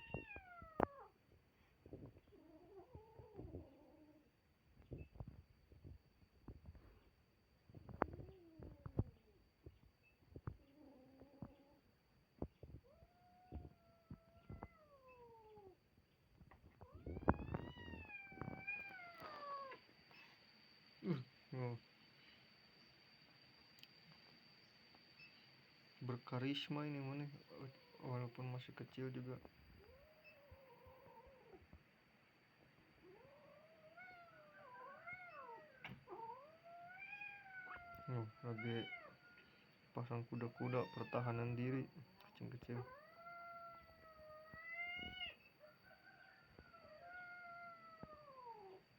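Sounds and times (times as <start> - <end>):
cat yowling: 0.0 - 1.1, 16.8 - 19.8, 33.0 - 39.4, 40.4 - 41.3, 42.7 - 45.5, 46.2 - 48.8.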